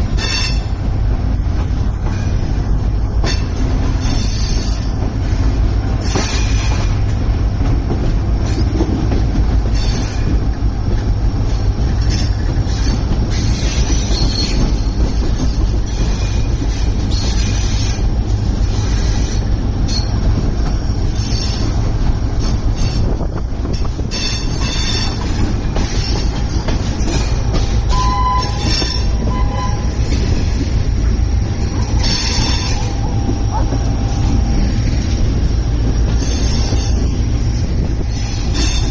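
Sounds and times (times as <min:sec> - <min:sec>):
rail clatter: 0:00.0 - 0:38.9
train rumbling on rails: 0:00.0 - 0:38.9
wheel squeals: 0:12.0 - 0:18.0, 0:24.1 - 0:30.6, 0:31.8 - 0:34.9.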